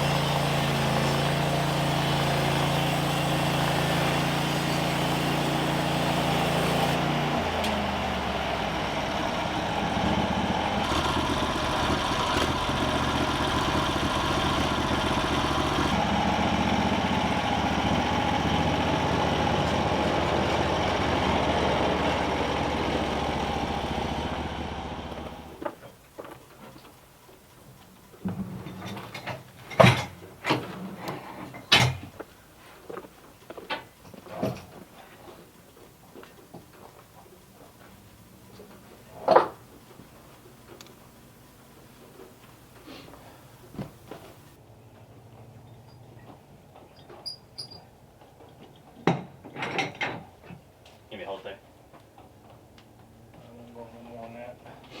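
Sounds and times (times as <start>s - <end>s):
engine running: 0.0s - 25.8s.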